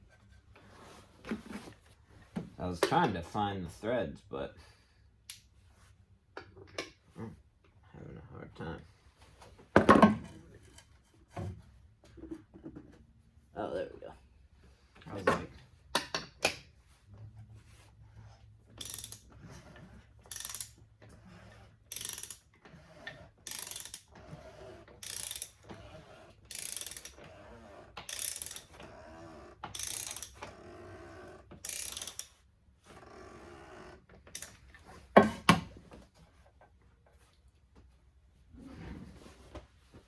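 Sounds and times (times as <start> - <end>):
ratchet wrench clicking: 18.8 - 19.3, 20.2 - 20.8, 21.9 - 22.5, 23.4 - 24.1, 25.0 - 25.6, 26.5 - 27.2, 28.0 - 28.8, 29.7 - 30.5, 31.6 - 32.4, 34.3 - 34.6.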